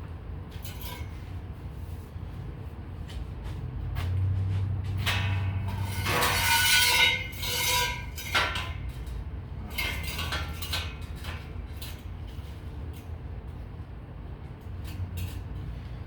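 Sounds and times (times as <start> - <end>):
scrap steel clanking: 4.9 - 13.0.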